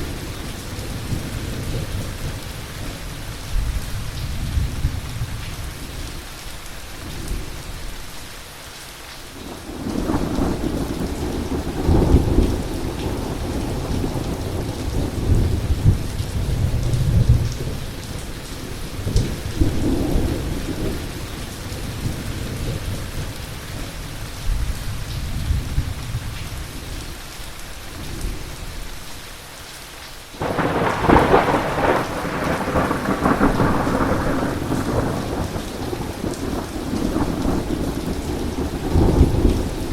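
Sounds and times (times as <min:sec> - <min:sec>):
heavy rain: 0:00.0 - 0:39.9
thunder rumbling: 0:09.6 - 0:18.0, 0:30.4 - 0:39.9
sharp thunderclap: 0:30.4 - 0:39.8.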